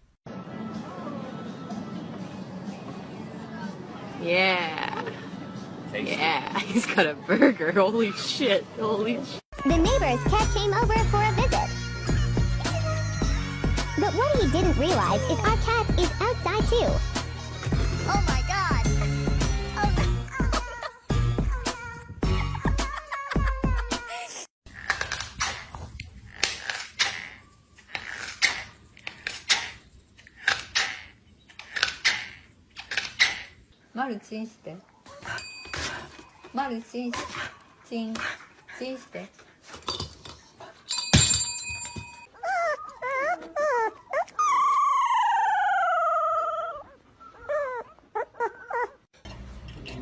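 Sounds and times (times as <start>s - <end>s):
dog whining yelps: 42.3s - 49.1s.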